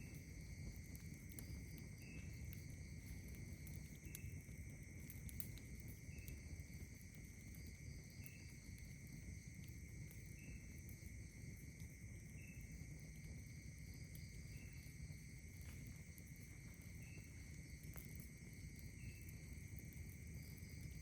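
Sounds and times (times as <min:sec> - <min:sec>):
crickets trilling: 0:00.0 - 0:21.0
short insect chirp: 0:01.2 - 0:04.5, 0:05.1 - 0:21.0
faint clicks: 0:05.1 - 0:06.4.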